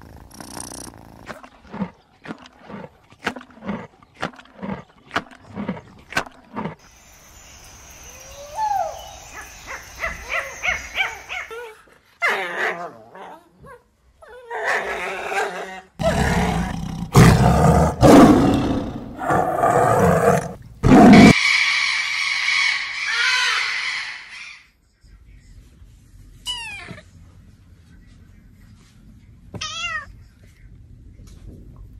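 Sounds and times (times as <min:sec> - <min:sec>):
faint chirping animal calls: 0:07.0 - 0:11.6
low growling roar: 0:15.4 - 0:21.4
parrot screeching: 0:21.2 - 0:24.6.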